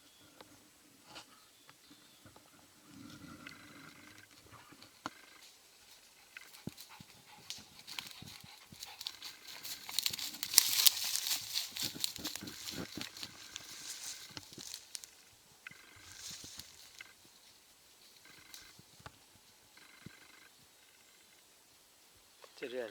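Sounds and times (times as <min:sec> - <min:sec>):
dog rustling through dry leaves: 0:07.9 - 0:15.0.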